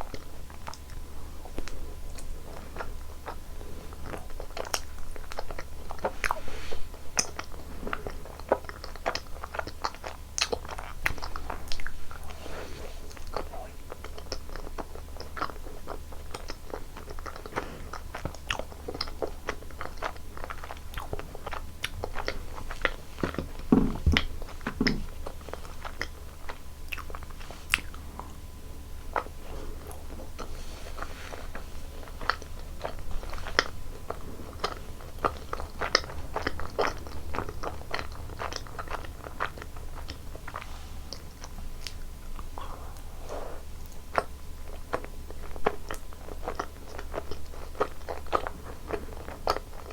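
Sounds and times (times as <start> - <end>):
faint low hum: 0.0 - 49.9
person biting and chewing food: 13.1 - 28.5, 29.1 - 49.9.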